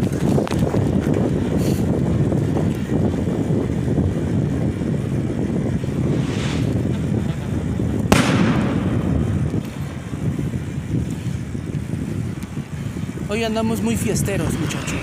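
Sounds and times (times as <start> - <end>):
bicycle road rumble: 0.0 - 15.0
wind on microphone: 0.0 - 15.0
firework bang: 5.8 - 10.2.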